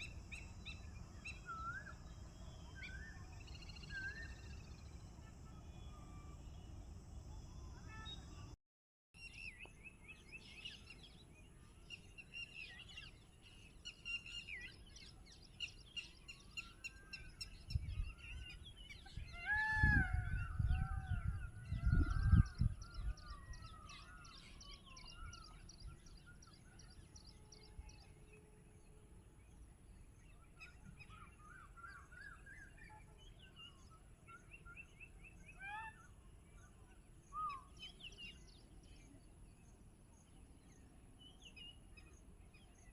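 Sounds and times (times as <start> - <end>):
birds chirping and trilling: 0.0 - 8.5, 11.9 - 28.4.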